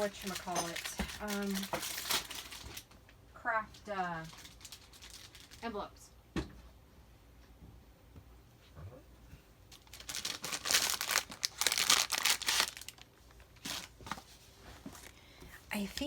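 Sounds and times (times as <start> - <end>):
wrapping crinkling and tearing: 0.0 - 2.9, 3.8 - 5.7, 9.7 - 14.2.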